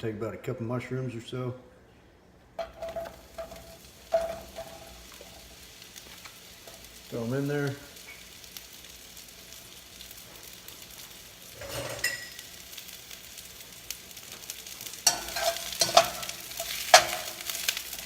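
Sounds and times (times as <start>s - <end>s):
utensil clanking against pan: 2.6s - 5.0s, 15.0s - 17.6s
mushrooms sizzling in oil: 2.6s - 18.0s.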